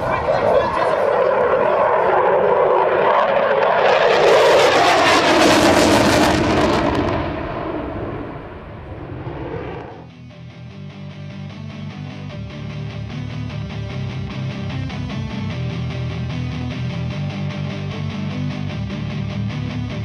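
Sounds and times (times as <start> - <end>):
jet aircraft flying past: 0.0 - 10.1.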